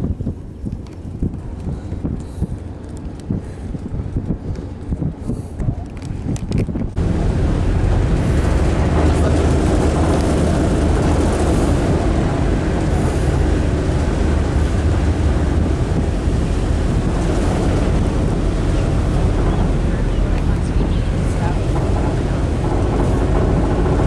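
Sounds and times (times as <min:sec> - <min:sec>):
ship engines rumbling: 0:00.0 - 0:24.0
rushing noise: 0:06.9 - 0:24.0.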